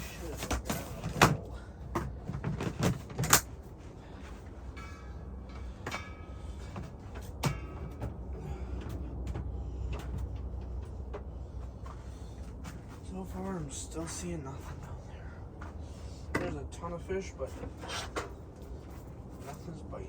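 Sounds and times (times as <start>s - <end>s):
low rumble: 3.5s - 16.2s.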